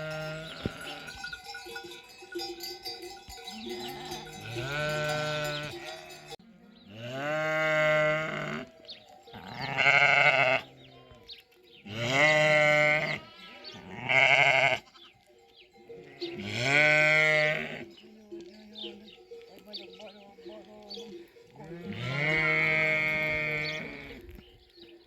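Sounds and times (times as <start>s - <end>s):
sheep bleating: 0.0s - 1.4s, 3.5s - 11.2s, 11.8s - 15.2s, 15.9s - 18.0s, 19.6s - 24.4s.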